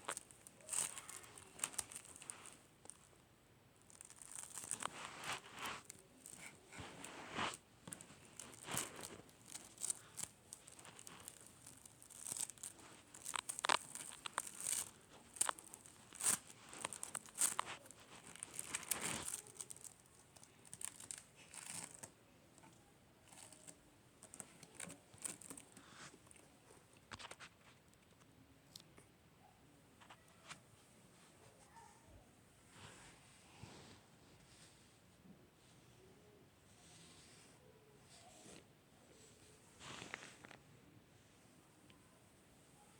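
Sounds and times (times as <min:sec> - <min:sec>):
slime crackling and popping: 0:00.0 - 0:03.1, 0:03.8 - 0:22.1, 0:23.3 - 0:25.8.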